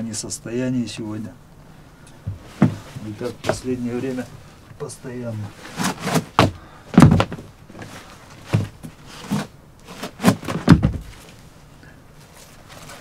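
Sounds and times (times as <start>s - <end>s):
objects knocking and thudding: 2.3s - 3.6s, 5.8s - 11.4s.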